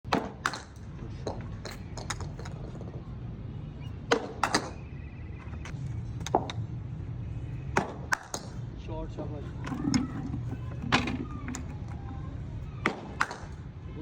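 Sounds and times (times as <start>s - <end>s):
cricket ball hitting bat: 7.8s - 8.6s, 12.7s - 13.6s.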